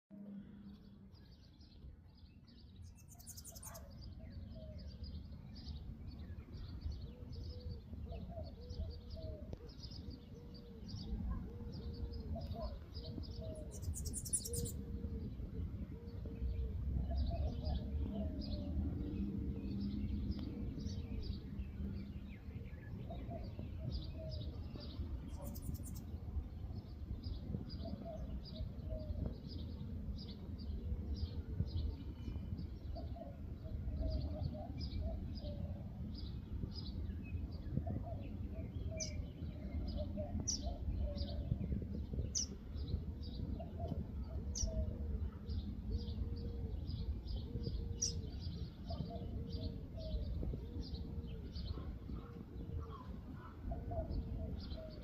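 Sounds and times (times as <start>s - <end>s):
small birds chirping: 0.5s - 55.0s
dove cooing: 43.6s - 55.0s.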